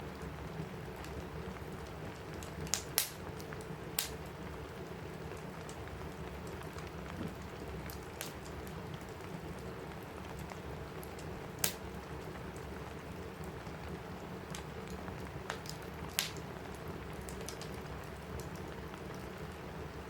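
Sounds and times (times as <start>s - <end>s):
fireplace crackling: 0.0s - 20.0s
rain on a roof: 0.0s - 20.0s
sharp pops from fire: 2.4s - 3.4s, 4.0s - 4.2s, 7.2s - 8.6s, 11.0s - 11.9s, 15.4s - 16.4s.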